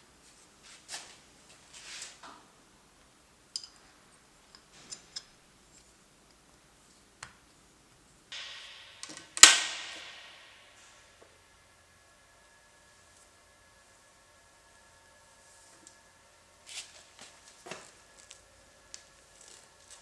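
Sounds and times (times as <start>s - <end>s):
short hiss: 8.4s - 11.3s
sharp ringing strike: 8.4s - 12.8s.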